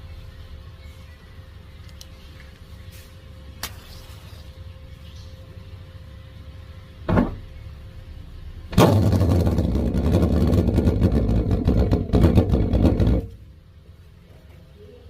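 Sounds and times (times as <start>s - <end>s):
pulse jet engine running: 8.5s - 13.3s.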